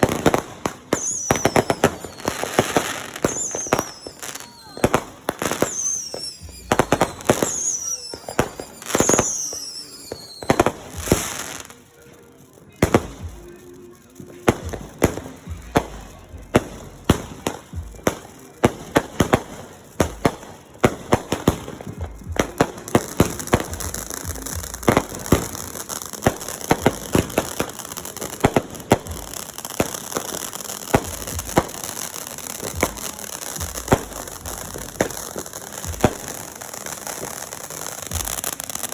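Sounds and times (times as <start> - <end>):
falling firework whistles: 0.0 - 11.8
fireworks bangs and crackles: 0.0 - 38.9.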